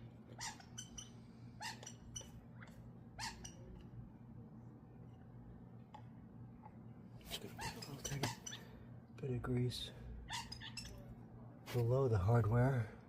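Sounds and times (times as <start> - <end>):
low steady hum: 0.0 - 13.0
dog whining: 0.3 - 2.3, 7.5 - 8.7.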